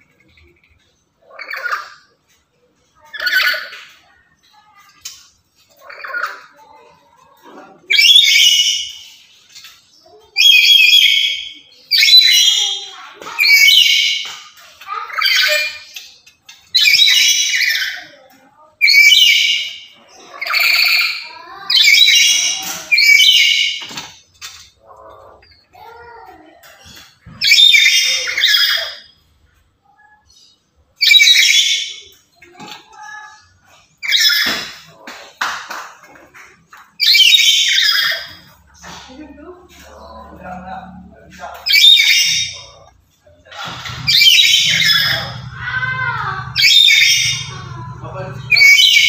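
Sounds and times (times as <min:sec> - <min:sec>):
parrot harsh squawks: 0:01.2 - 0:02.1, 0:05.7 - 0:06.5, 0:07.7 - 0:09.2, 0:10.4 - 0:14.3, 0:16.7 - 0:18.1, 0:18.8 - 0:23.8, 0:27.4 - 0:29.1, 0:31.0 - 0:32.1, 0:34.0 - 0:34.9, 0:37.0 - 0:38.6, 0:41.6 - 0:42.9, 0:43.5 - 0:49.0.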